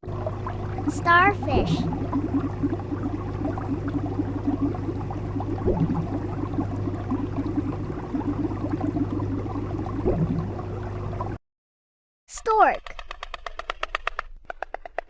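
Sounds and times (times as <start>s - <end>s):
steady low hum: 0.0s - 11.4s
water bubbling and gurgling: 0.0s - 11.4s.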